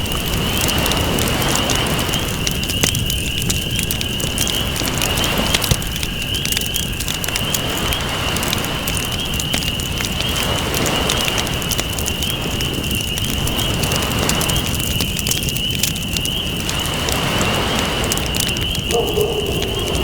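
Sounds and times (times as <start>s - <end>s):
campfire crackling: 0.0s - 20.0s
ocean waves rushing: 16.9s - 20.0s.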